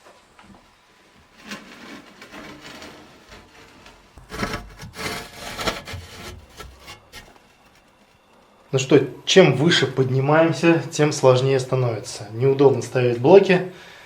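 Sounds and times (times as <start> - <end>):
scraping on concrete blocks: 1.1 - 8.6.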